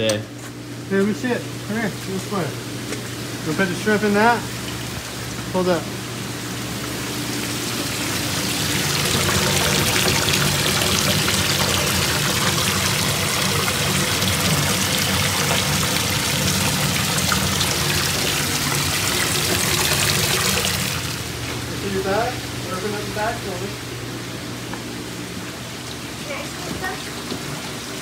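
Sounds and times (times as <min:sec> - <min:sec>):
running water pouring: 0:07.2 - 0:21.4.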